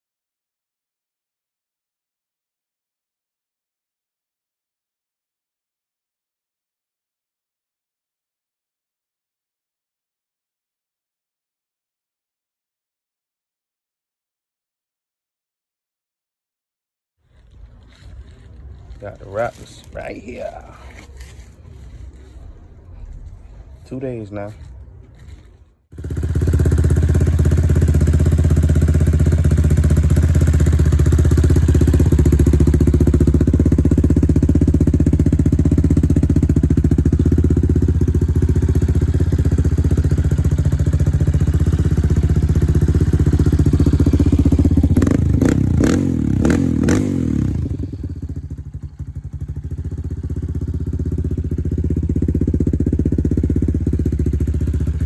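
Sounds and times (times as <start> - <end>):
atv engine running and revving: 26.0 - 55.0.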